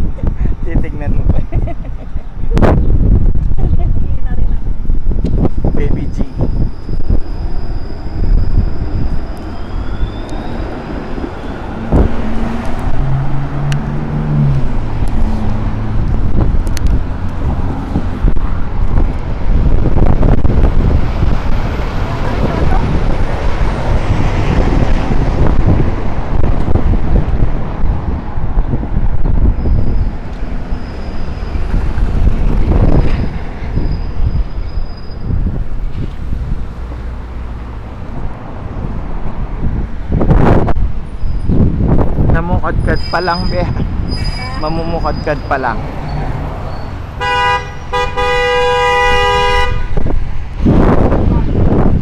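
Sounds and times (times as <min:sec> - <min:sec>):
streetcar rumbling: 0:00.0 - 0:52.0
high-pitched wheel squeal: 0:05.6 - 0:13.8, 0:29.4 - 0:32.0, 0:32.7 - 0:35.7, 0:41.0 - 0:49.5.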